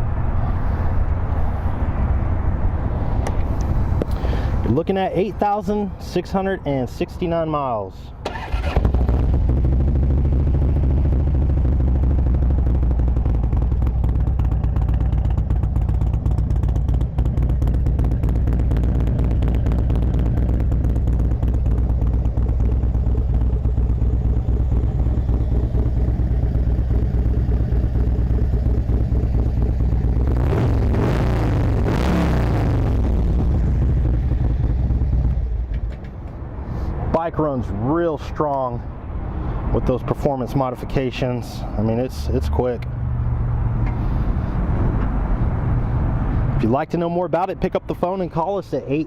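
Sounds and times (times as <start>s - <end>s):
motorcycle engine idling: 8.3s - 30.4s, 32.8s - 36.2s.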